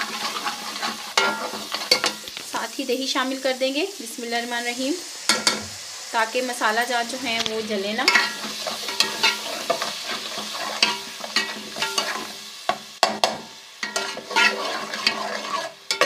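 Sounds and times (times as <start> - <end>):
spoon stirring and scraping: 0.0 - 2.4, 8.1 - 12.3, 13.2 - 16.0
spices sizzling in a pot: 0.0 - 16.0
knocks against a pan: 12.7 - 13.5.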